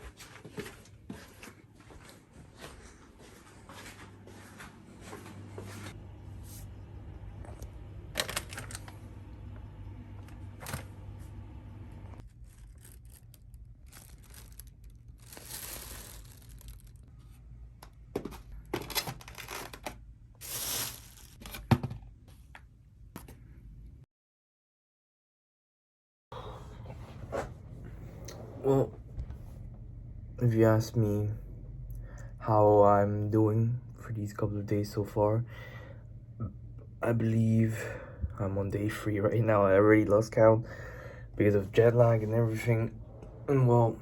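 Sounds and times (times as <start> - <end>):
steady low hum: 0.1 - 18.8, 26.3 - 44.0
rustling and tearing: 12.2 - 17.2, 18.8 - 21.6.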